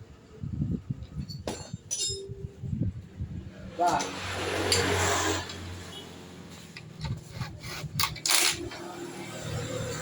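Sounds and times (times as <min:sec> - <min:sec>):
tool scraping and rubbing: 0:07.0 - 0:08.9.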